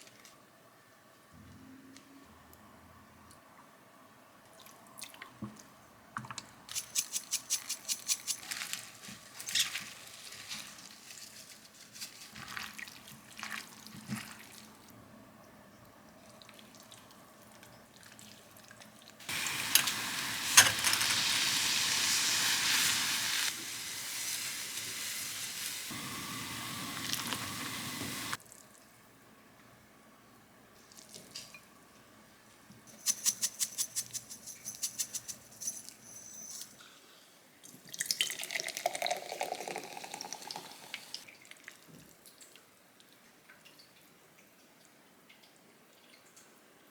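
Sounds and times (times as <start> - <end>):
kitchen tap running: 19.3 - 28.4.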